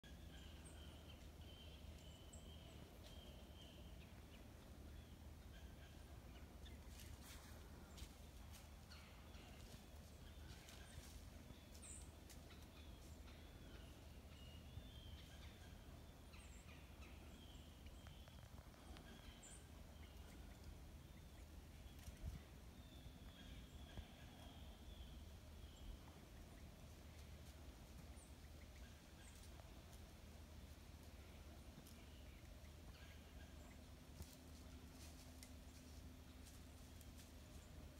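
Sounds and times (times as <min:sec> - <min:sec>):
faint bird calls: 0:00.0 - 0:30.1.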